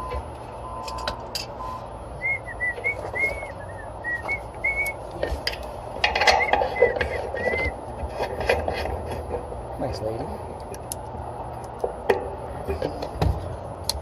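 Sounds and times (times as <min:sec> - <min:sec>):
person whistling a tune: 0:02.2 - 0:05.0, 0:06.3 - 0:07.8
tools clinking and rustling: 0:05.2 - 0:09.5.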